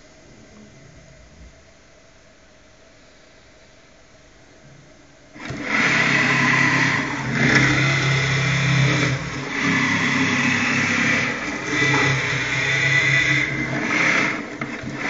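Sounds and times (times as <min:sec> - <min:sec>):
milling machine humming and whining: 0:04.5 - 0:15.0.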